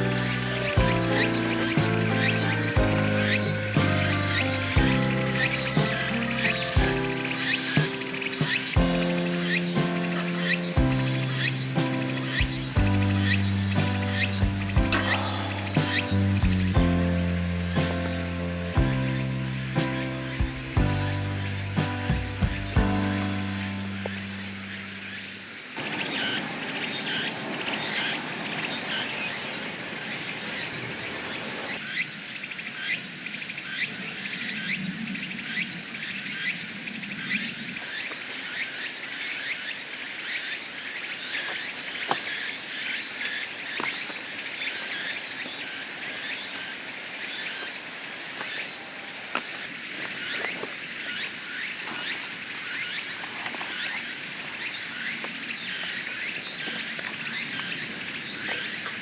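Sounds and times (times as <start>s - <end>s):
bird chirps: 0.0s - 17.0s
insects droning: 0.0s - 59.0s.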